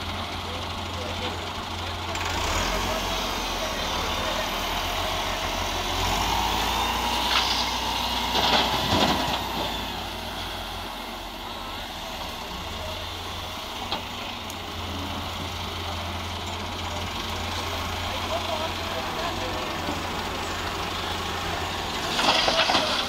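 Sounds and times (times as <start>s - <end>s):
diesel engine running: 0.0s - 23.0s
clanks and rattles: 8.3s - 9.8s, 22.0s - 23.0s.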